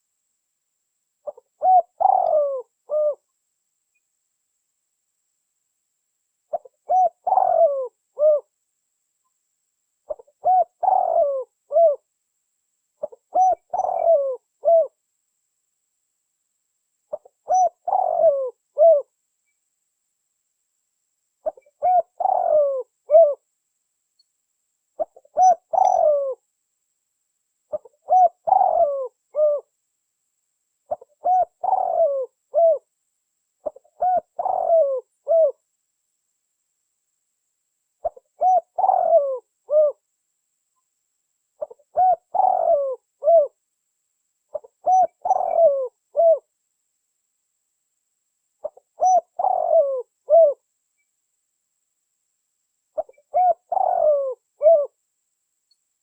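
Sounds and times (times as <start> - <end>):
dove cooing: 1.2 - 3.3, 6.5 - 8.5, 10.1 - 12.1, 13.0 - 15.0, 17.1 - 19.1, 21.4 - 23.4, 25.0 - 26.4, 27.7 - 29.7, 30.9 - 32.9, 33.6 - 35.6, 38.0 - 40.0, 41.6 - 43.6, 44.5 - 46.5, 48.6 - 50.6, 53.0 - 55.0.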